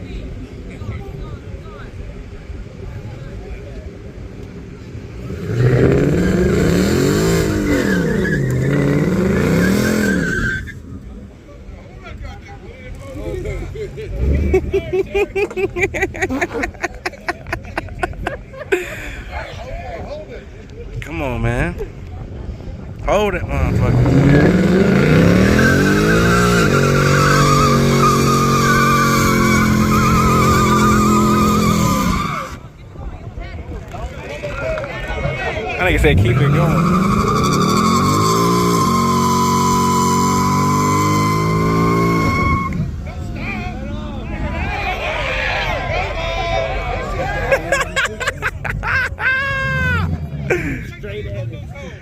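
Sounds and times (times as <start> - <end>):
tires squealing: 5.1 - 11.2, 23.5 - 32.8, 35.2 - 48.0
engine revving hard: 5.2 - 10.3, 23.6 - 32.6, 36.0 - 42.8.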